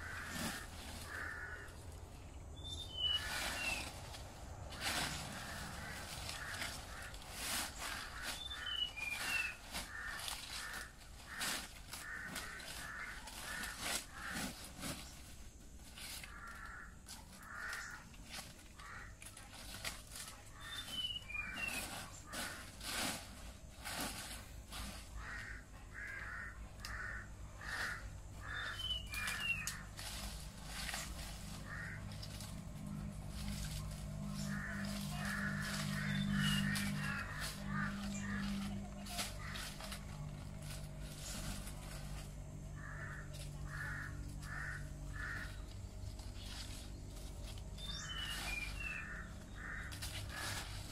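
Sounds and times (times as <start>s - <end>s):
birds cawing: 0.0s - 4.1s, 4.7s - 50.9s
high bird chirps: 2.6s - 3.9s, 20.6s - 21.9s.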